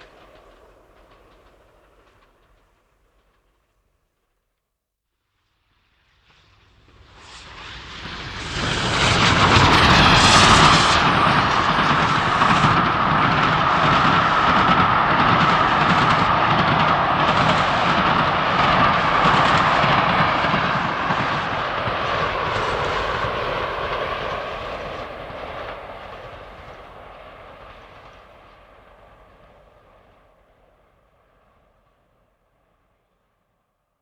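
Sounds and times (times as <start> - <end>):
steam train running: 0.0 - 3.5, 6.8 - 30.2.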